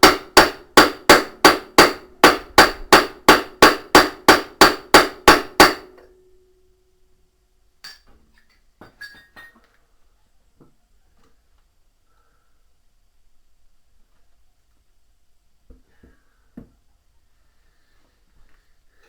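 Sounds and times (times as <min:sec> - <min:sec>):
hammer striking metal: 0:00.0 - 0:06.4.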